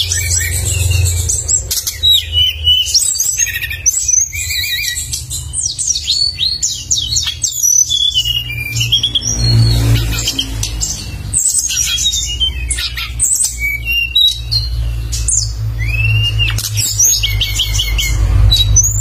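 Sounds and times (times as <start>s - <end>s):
songbird chirping and trilling: 0.0s - 19.0s.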